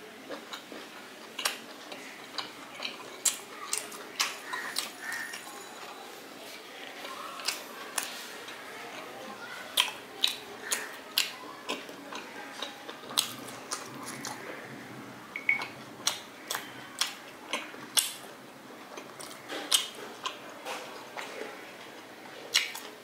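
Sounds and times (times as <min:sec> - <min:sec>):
close-up chewing: 0:00.2 - 0:14.8, 0:15.4 - 0:23.0
mouth clicks and lip smacks: 0:09.8 - 0:14.4, 0:22.5 - 0:23.0.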